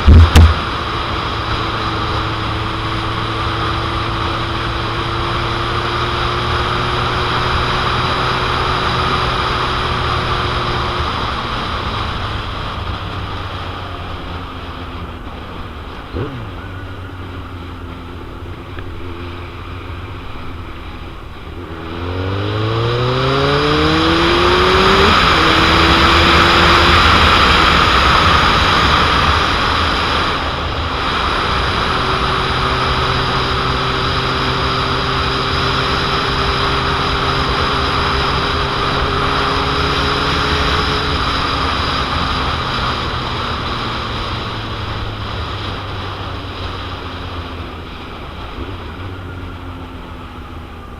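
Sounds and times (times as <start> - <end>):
wind noise on microphone: 0.0 - 2.9
motorcycle engine revving: 0.0 - 50.9.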